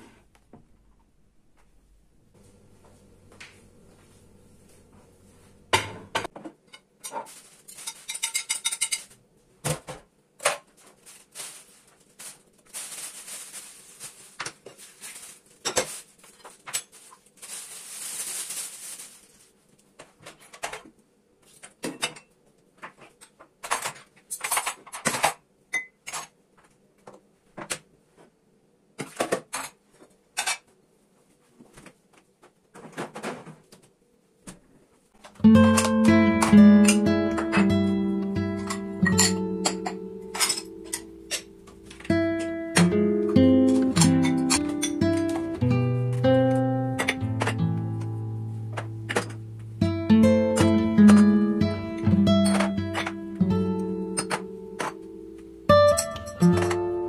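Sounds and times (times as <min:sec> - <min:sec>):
dishes and cutlery clinking: 0:05.7 - 0:09.2, 0:38.6 - 0:42.9, 0:43.6 - 0:45.6, 0:52.3 - 0:53.2, 0:54.2 - 0:55.1.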